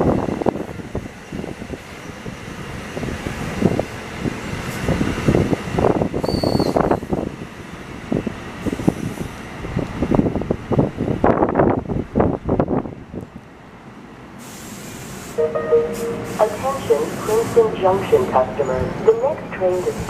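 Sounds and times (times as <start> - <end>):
train wheels rumbling on rail: 0.0 - 15.4, 16.2 - 20.0.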